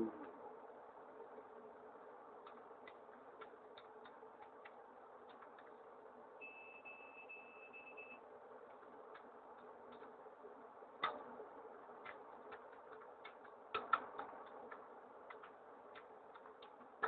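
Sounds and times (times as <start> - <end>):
faint ticks: 2.4 - 6.0, 8.1 - 17.0
faint high-pitched beeping: 6.4 - 8.3.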